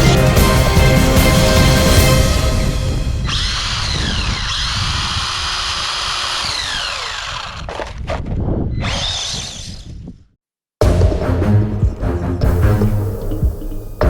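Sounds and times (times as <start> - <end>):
toy car electric motor whining: 3.2 - 8.0, 8.8 - 10.0.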